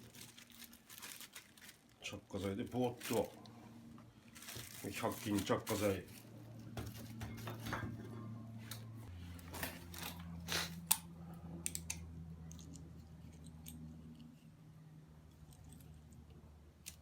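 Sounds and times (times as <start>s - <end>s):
crunching handling noises: 0.0s - 7.7s, 8.6s - 14.6s
steady low hum: 2.1s - 17.0s.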